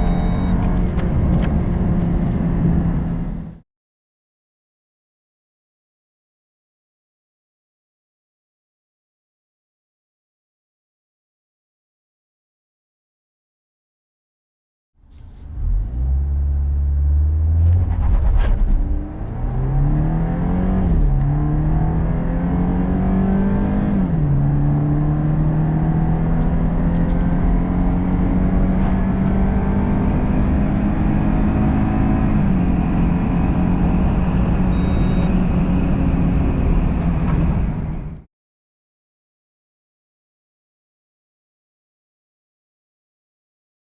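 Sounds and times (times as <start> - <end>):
short high electronic beep: 0.0 - 0.6, 34.7 - 35.4
car engine at full throttle: 0.0 - 3.6, 15.1 - 38.2.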